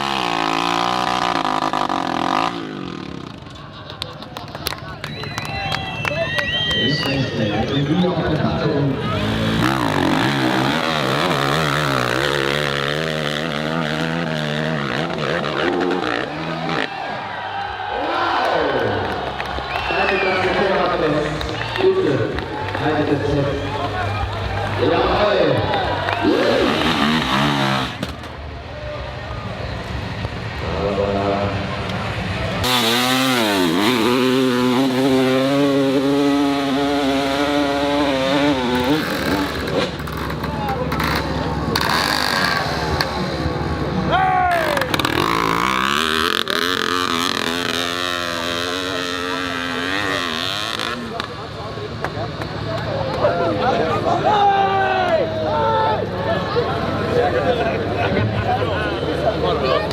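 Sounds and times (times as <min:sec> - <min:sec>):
dirt bike engine revving: 0:00.0 - 0:03.5, 0:07.5 - 0:17.7, 0:20.0 - 0:28.4, 0:30.6 - 0:52.6.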